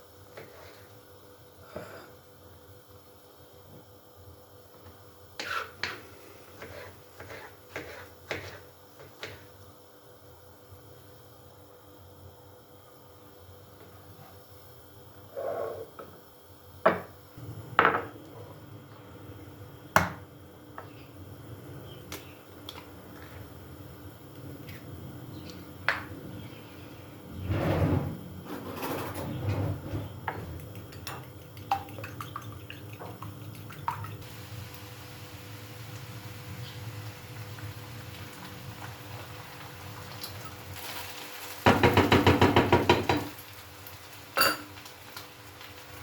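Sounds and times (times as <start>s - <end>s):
dishes clattering and scraping: 27.3s - 32.2s, 44.4s - 44.8s.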